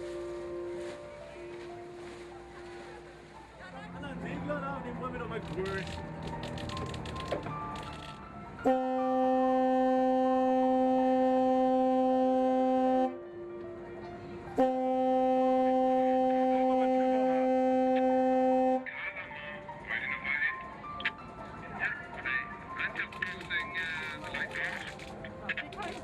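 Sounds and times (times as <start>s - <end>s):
ship's horn blasts: 0.0s - 3.3s, 8.6s - 13.6s, 14.5s - 19.0s.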